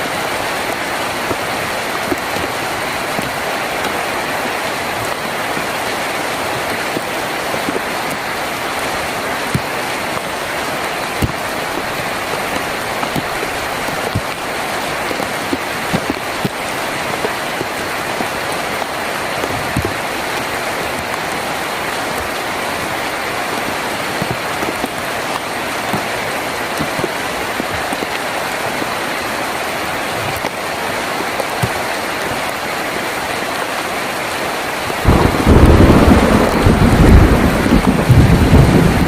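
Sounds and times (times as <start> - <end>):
heavy rain on a tin roof: 0.0 - 39.0
thunder rumbling: 35.0 - 39.0.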